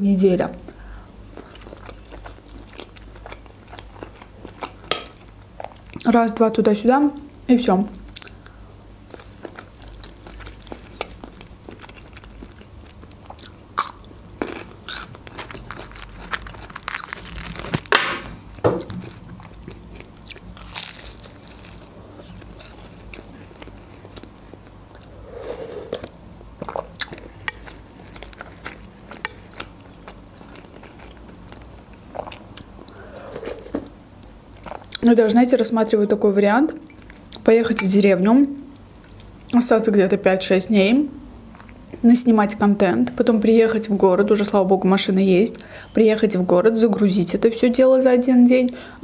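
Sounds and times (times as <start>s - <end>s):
crunching and chewing pastry snack: 0.7s - 6.2s, 8.0s - 25.1s, 26.6s - 33.1s.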